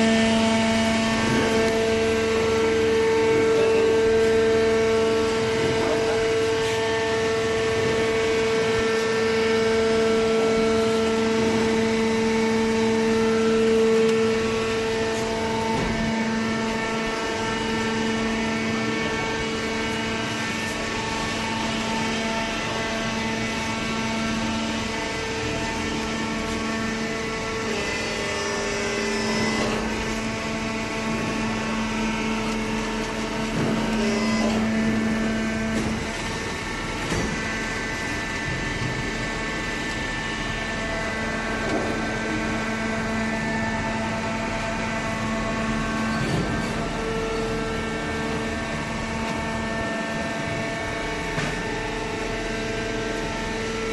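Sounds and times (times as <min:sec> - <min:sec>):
hydraulic baler humming: 0:00.0 - 0:53.9.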